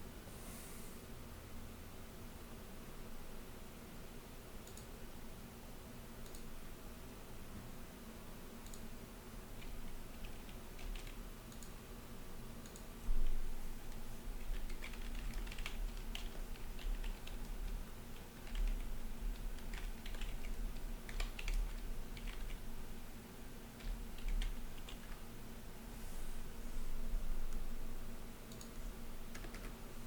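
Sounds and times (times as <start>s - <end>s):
typing on computer keyboard: 9.6s - 11.8s, 14.4s - 22.6s, 23.8s - 25.2s, 28.5s - 29.8s.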